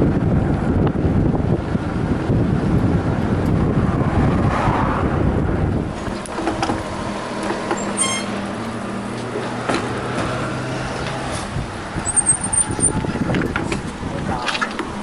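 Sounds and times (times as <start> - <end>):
road noise: 0.0 - 15.0
vehicle engine running: 0.0 - 15.0
short high beep: 7.9 - 8.3.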